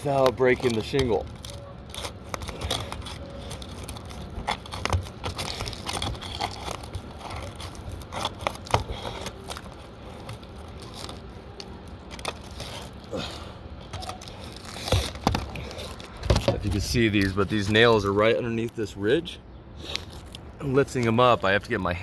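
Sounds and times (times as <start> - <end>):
roof shingles scraping and crackling: 0.0 - 22.0.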